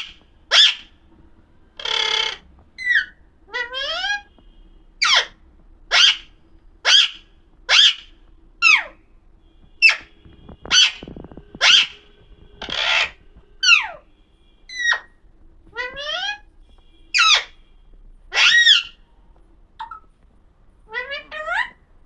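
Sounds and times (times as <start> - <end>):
parrot screeching: 0.0 - 1.0, 1.8 - 4.3, 5.0 - 9.0, 9.8 - 12.0, 12.6 - 14.1, 14.7 - 16.5, 17.1 - 17.6, 18.3 - 19.0, 20.9 - 21.9.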